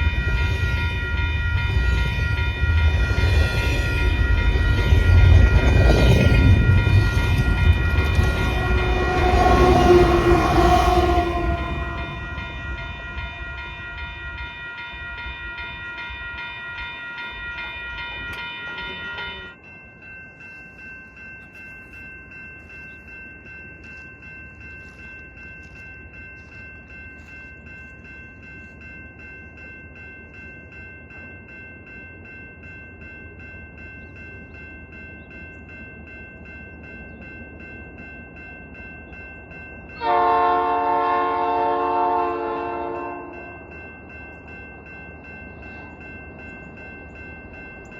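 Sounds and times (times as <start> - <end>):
bell ringing: 0.0 - 47.9
locomotive horn chord: 8.2 - 12.6, 40.0 - 43.5.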